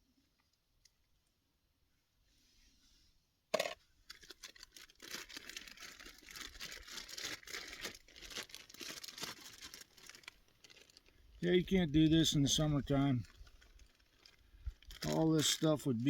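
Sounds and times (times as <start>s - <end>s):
plastic crinkling and rustling: 4.0s - 16.0s.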